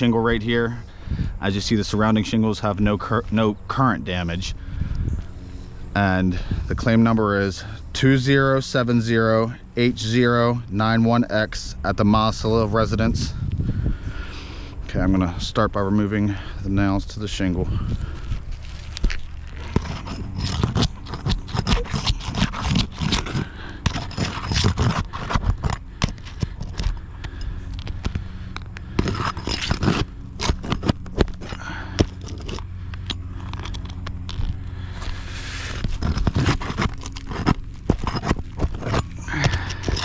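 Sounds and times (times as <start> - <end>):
faint low hum: 0.0 - 40.0
tool scraping roof shingles: 17.7 - 40.0.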